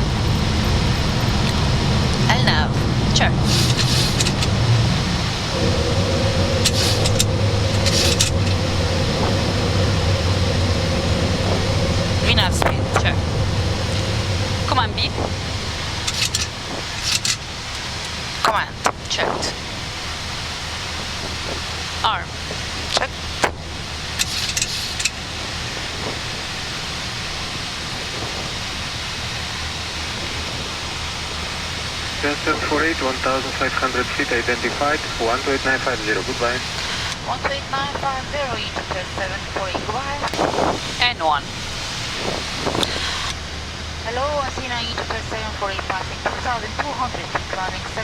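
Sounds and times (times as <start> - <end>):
air rushing past cockpit: 0.0 - 48.0
low engine hum: 0.0 - 48.0
short hisses: 3.4 - 4.3.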